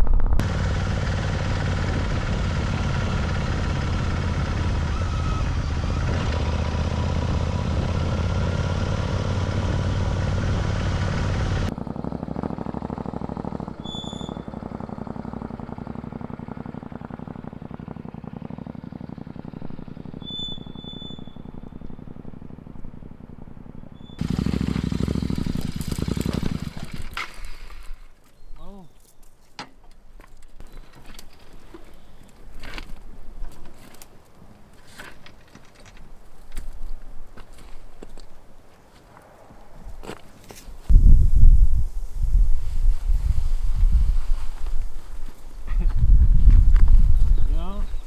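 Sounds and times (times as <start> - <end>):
loud low rumble: 0.0 - 13.8
motorcycle engine running: 0.0 - 28.0, 40.9 - 48.0
short chirps: 20.2 - 22.0
wind noise: 39.4 - 48.0.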